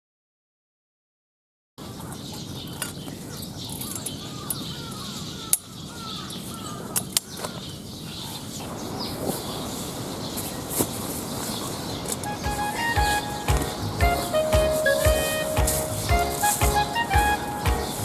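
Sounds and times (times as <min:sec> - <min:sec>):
birds chirping: 0:11.3 - 0:18.0.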